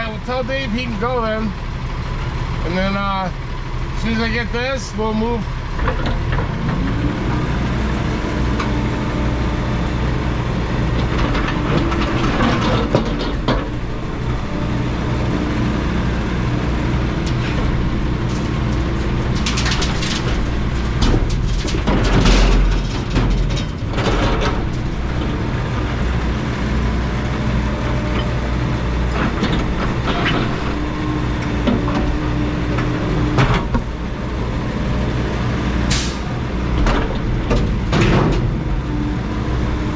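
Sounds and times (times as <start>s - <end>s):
diesel engine running: 0.0s - 39.9s
machine clanks and knocks: 11.0s - 13.9s, 17.3s - 25.4s, 32.8s - 33.9s, 36.8s - 38.7s.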